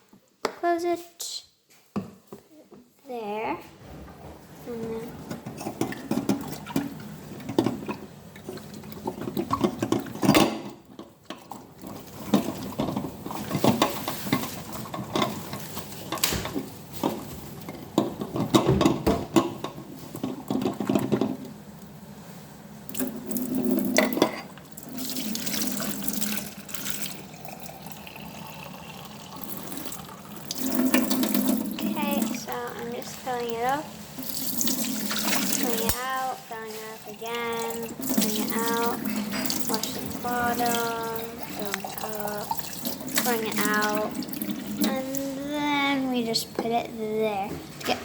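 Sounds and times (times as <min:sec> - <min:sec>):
water splashing: 0:24.8 - 0:45.4.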